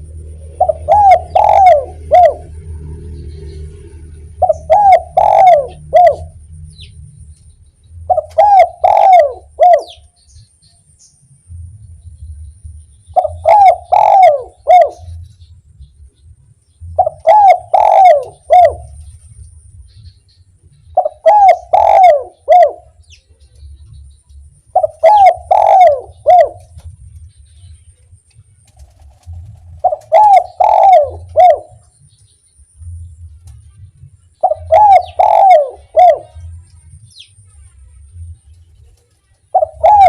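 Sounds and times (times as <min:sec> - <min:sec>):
dove cooing: 0:00.0 - 0:06.9, 0:07.9 - 0:10.0, 0:13.1 - 0:15.3, 0:16.8 - 0:19.2, 0:20.9 - 0:23.0, 0:24.7 - 0:27.0, 0:29.0 - 0:31.9, 0:34.4 - 0:36.6, 0:38.8 - 0:40.0
low rumble: 0:00.0 - 0:39.0.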